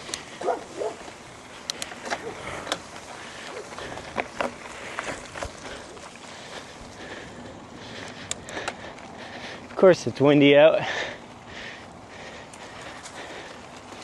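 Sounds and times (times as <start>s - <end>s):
bike clicks and rattles: 0.0s - 14.0s
wind and tyre noise: 0.0s - 14.0s
dog barking: 0.4s - 1.0s.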